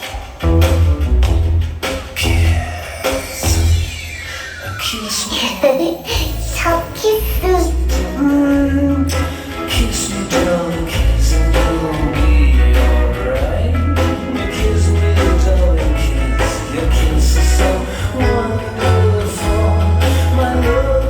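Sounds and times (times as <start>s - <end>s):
heavy pulsing bass: 0.4s - 2.8s, 3.4s - 4.0s, 6.2s - 21.0s
person singing: 4.4s - 21.0s.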